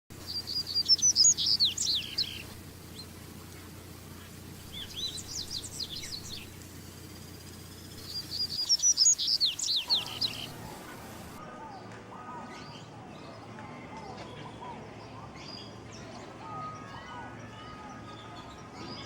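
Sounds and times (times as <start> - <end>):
bird singing whistled notes: 0.2 - 3.1, 4.6 - 6.6, 7.2 - 11.4.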